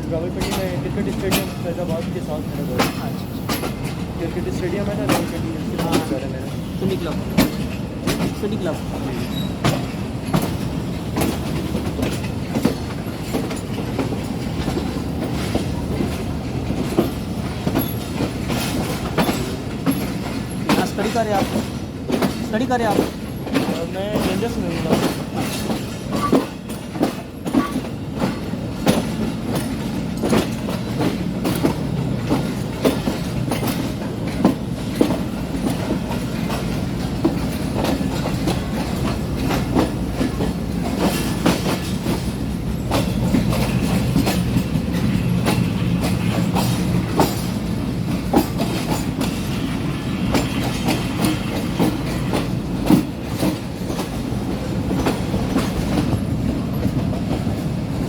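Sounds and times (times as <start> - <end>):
train rumbling: 0.0 - 58.0
wheels clacking over rail joints: 0.0 - 58.0.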